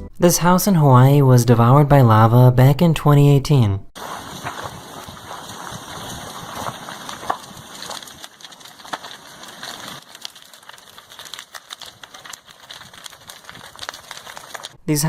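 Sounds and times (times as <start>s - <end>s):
fire crackling and popping: 4.0s - 14.8s.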